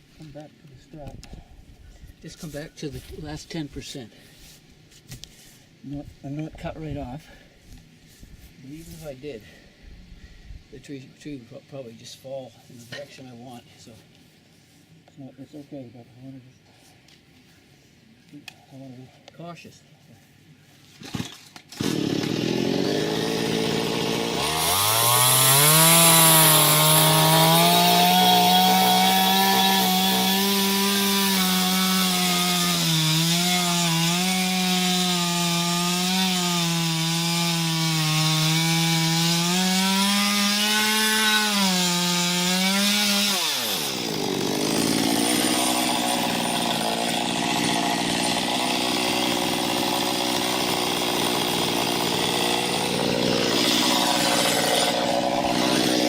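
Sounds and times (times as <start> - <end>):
chainsaw cutting wood: 21.0 - 56.0.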